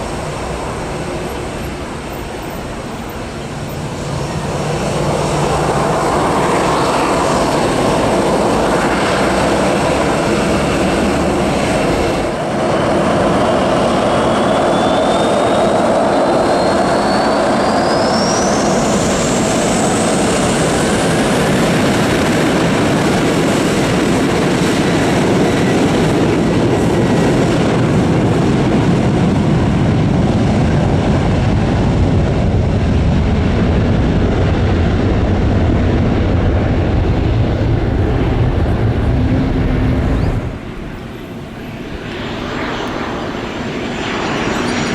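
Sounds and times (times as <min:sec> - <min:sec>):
jet engines roaring: 0:00.0 - 0:44.9
engine whine rising in pitch: 0:35.6 - 0:43.3.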